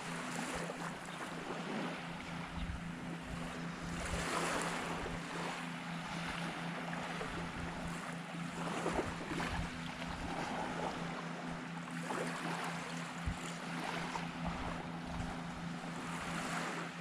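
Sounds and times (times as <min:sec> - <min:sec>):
small waves washing: 0:00.0 - 0:17.0
steady low hum: 0:00.0 - 0:17.0
wind on microphone: 0:02.4 - 0:05.3, 0:08.7 - 0:11.0, 0:13.2 - 0:15.6.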